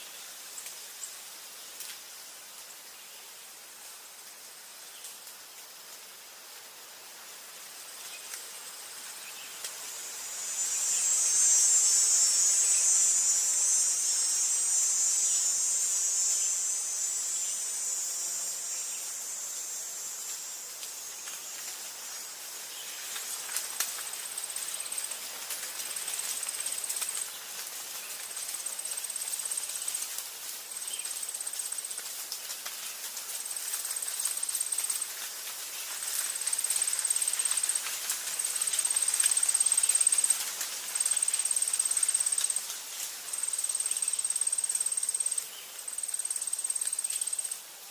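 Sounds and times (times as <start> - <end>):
soft background hiss: 0.0 - 47.9
short high insect trills: 7.8 - 47.9
high-pitched insect buzz: 8.0 - 27.4, 28.0 - 32.0, 33.4 - 47.8.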